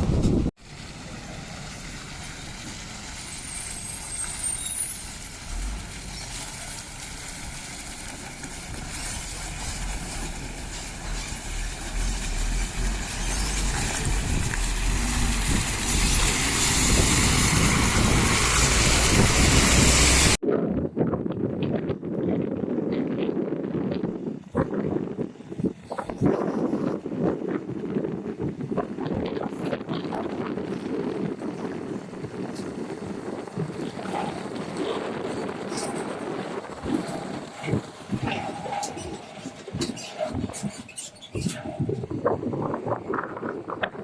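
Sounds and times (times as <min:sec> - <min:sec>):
heavy truck engine running: 0:00.0 - 0:20.4, 0:27.0 - 0:41.3
road noise: 0:00.0 - 0:20.4, 0:21.3 - 0:44.0.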